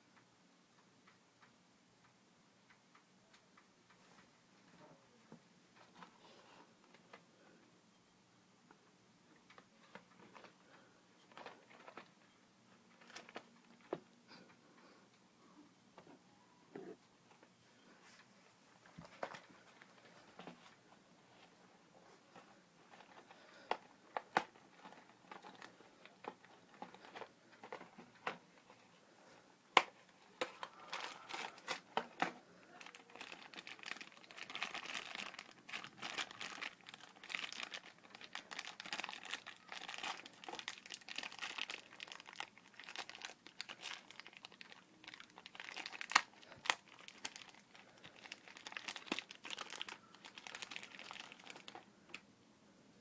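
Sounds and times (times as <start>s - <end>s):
plastic packaging crinkling: 11.2s - 12.2s, 12.9s - 14.0s, 22.3s - 28.8s, 29.8s - 52.2s.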